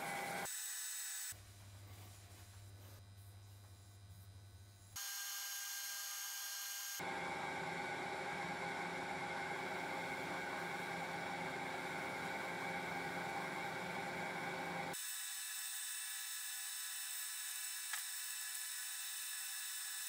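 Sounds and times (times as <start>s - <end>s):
lathe whirring: 0.0s - 1.3s, 5.0s - 15.0s.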